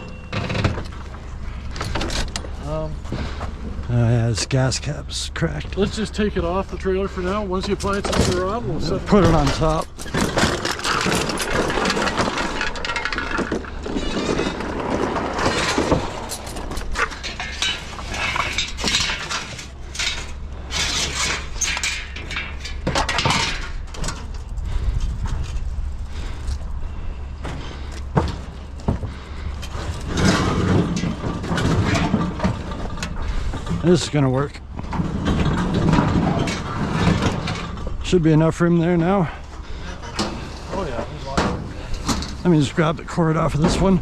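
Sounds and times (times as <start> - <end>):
scrap metal clanking and scraping: 0.0 - 44.0
steady low rumble: 0.9 - 44.0.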